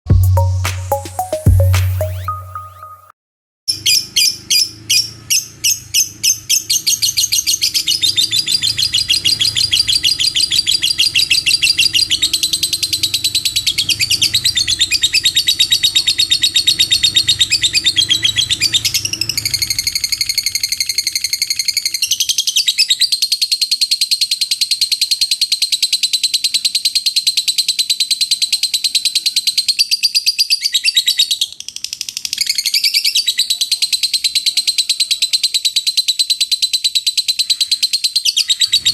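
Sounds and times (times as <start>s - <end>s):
lovebird chattering trill: 3.7s - 38.9s.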